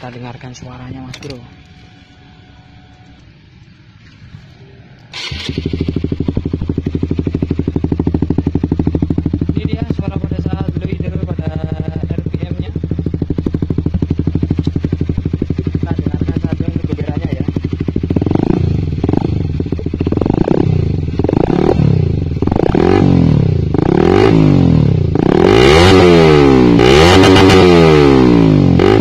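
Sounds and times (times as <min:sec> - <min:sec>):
motorcycle engine idling: 0:04.6 - 0:25.7
motorcycle engine revving: 0:05.1 - 0:29.0.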